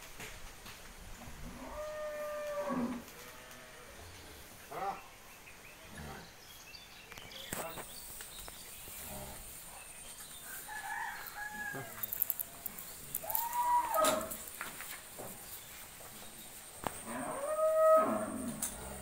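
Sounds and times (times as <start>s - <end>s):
faint bird calls and clicks: 7.0s - 9.1s, 10.0s - 15.7s
rooster crowing: 10.4s - 12.2s, 13.2s - 14.4s.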